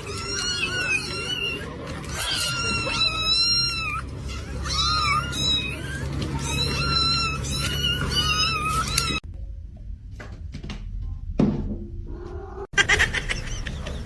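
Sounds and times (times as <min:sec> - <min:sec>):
cat meowing: 0:00.0 - 0:09.2.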